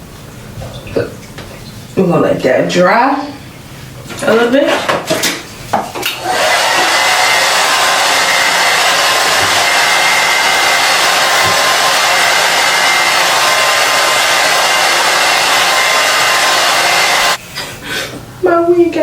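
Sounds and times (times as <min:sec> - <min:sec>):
hair dryer blowing: 0:06.1 - 0:17.4.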